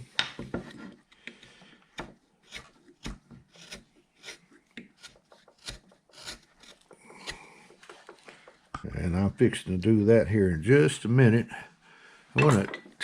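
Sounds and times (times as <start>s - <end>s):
carving tool shaving wood: 0.8s - 8.6s.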